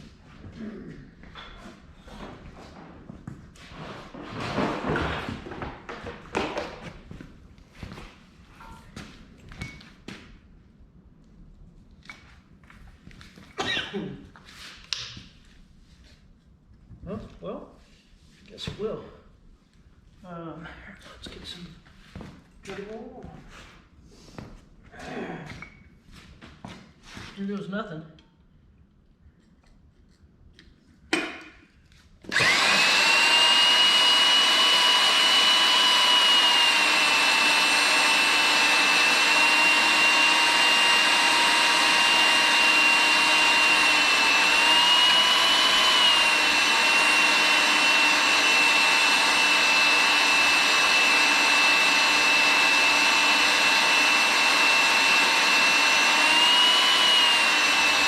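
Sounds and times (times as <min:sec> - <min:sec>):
drill motor whining: 0:32.3 - 0:58.0.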